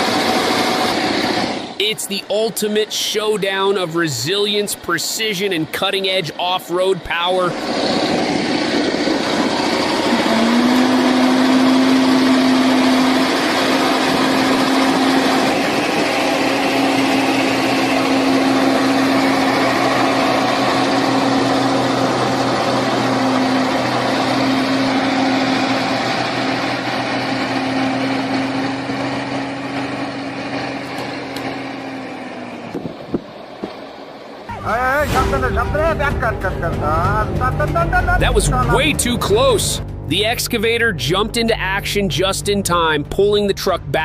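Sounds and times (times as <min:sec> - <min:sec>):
heavy vehicle engine revving: 0:00.0 - 0:44.0.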